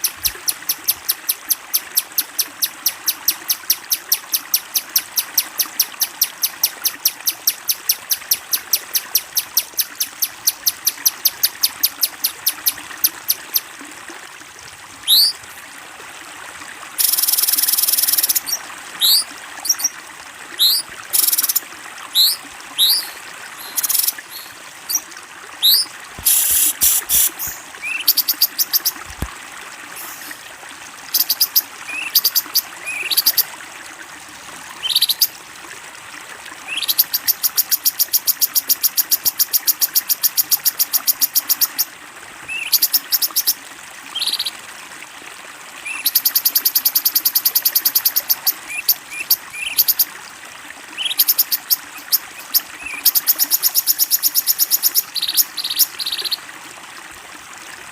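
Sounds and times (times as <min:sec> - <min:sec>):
flowing water trickle: 0:00.0 - 0:57.9
songbird chirps and trills: 0:20.6 - 0:29.1, 0:31.2 - 0:33.4, 0:34.8 - 0:35.3, 0:44.1 - 0:44.6, 0:51.0 - 0:56.4.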